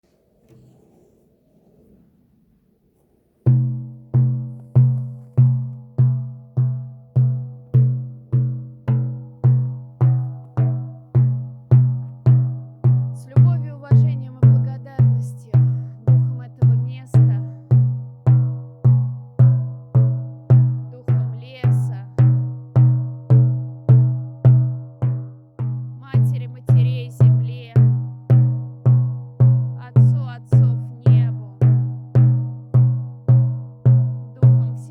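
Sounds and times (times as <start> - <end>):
frame drum deep strokes: 3.5 - 20.8.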